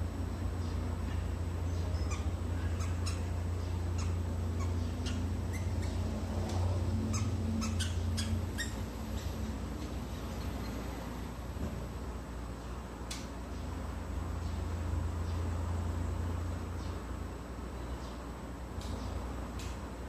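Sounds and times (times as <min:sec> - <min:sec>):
steady low hum: 0:00.0 - 0:20.0
birds chipping: 0:00.4 - 0:11.4.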